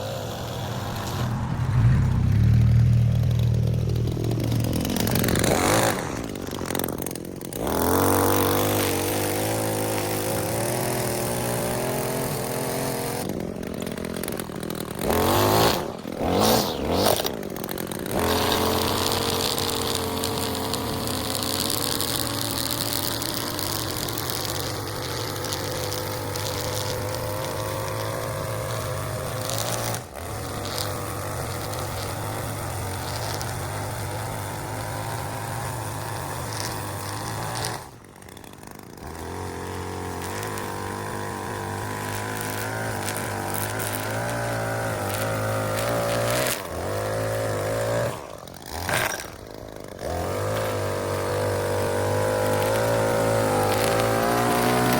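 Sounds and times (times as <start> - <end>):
lawn mower engine running: 0.0 - 54.9.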